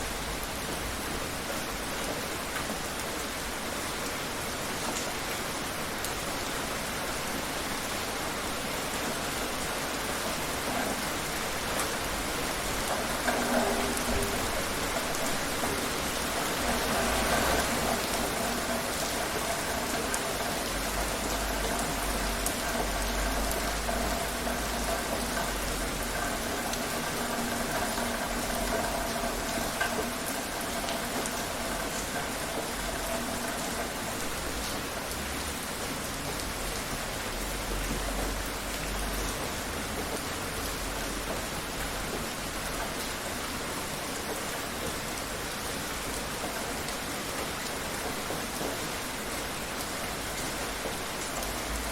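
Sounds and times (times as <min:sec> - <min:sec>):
steady rain falling: 0:00.0 - 0:51.9.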